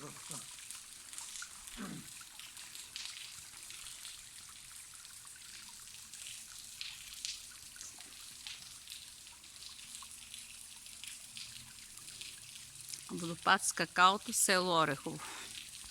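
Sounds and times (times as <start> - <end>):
drips and small splashes: 0.0 - 15.9
water trickling: 0.0 - 15.9.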